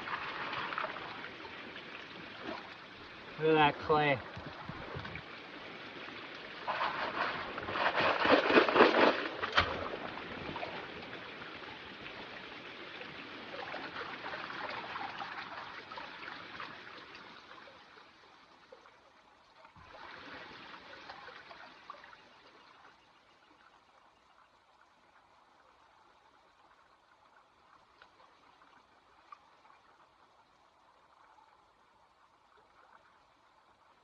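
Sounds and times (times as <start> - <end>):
water sloshing in a pan: 6.6 - 10.6.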